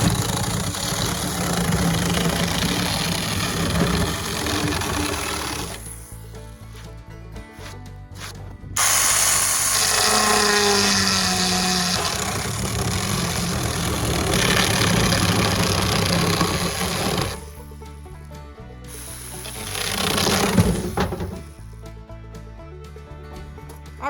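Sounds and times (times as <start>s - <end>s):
electric mini chainsaw cutting: 0.0s - 6.1s, 8.8s - 17.5s, 18.9s - 21.4s
background music: 0.0s - 24.0s.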